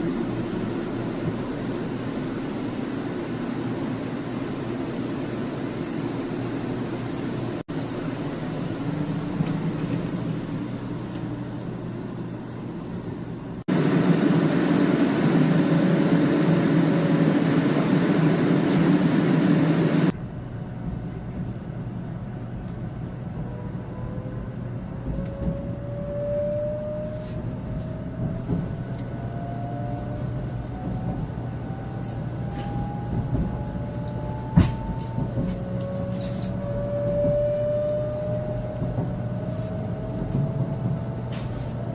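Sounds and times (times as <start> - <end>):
train running noise: 0.0 - 41.9
train motor whine rising: 22.6 - 41.9.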